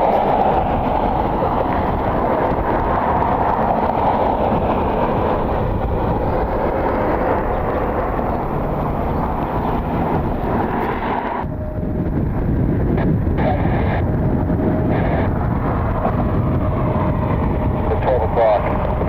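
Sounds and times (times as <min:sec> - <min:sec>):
jet engines roaring: 0:00.0 - 0:19.0
wind rumbling on microphone: 0:00.0 - 0:19.0.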